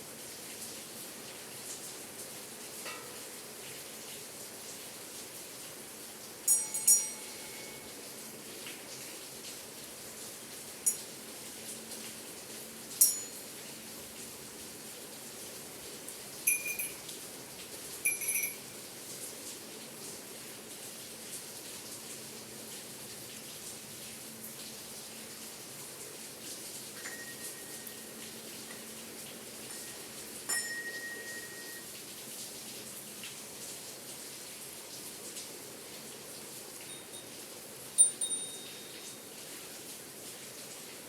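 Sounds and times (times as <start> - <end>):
steady rain falling: 0.0 - 41.0
small bells clinking: 6.5 - 7.9, 10.9 - 11.1, 13.0 - 13.5, 16.5 - 17.1, 18.0 - 18.7, 27.0 - 28.8, 29.6 - 31.9, 36.8 - 37.4, 38.0 - 39.3
rain hissing: 23.0 - 41.0.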